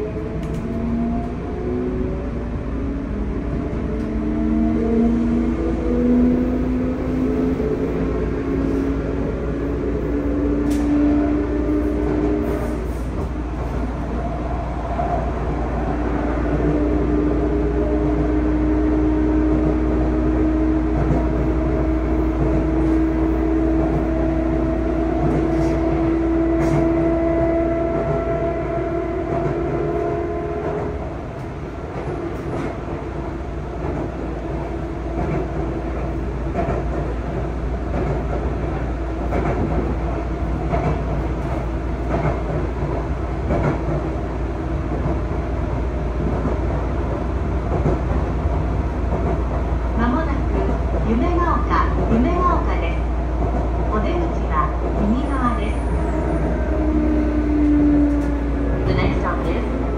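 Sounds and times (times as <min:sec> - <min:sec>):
wheels rumbling on rail: 0:00.0 - 0:59.9
rail-joint clicks: 0:10.6 - 0:11.0.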